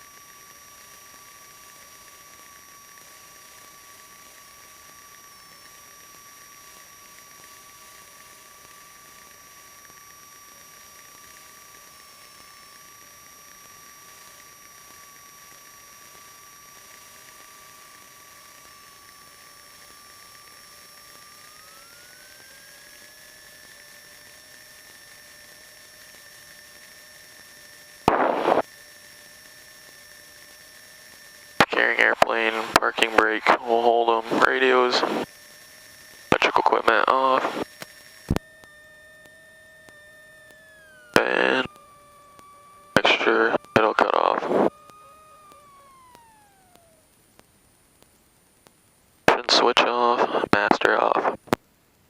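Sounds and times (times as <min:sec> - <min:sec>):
high-pitched whines: 0:00.0 - 0:48.7, 0:49.3 - 0:51.6
radio hiss: 0:28.0 - 0:28.7, 0:31.6 - 0:35.6, 0:36.2 - 0:51.6
burst of loud static: 0:28.1 - 0:28.7, 0:31.6 - 0:35.3, 0:36.3 - 0:37.7, 0:41.2 - 0:41.7, 0:42.9 - 0:44.7, 0:49.2 - 0:51.6.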